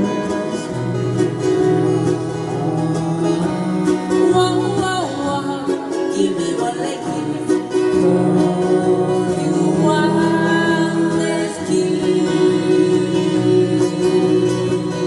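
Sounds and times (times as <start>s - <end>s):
strummed acoustic guitars: 0.0s - 15.0s.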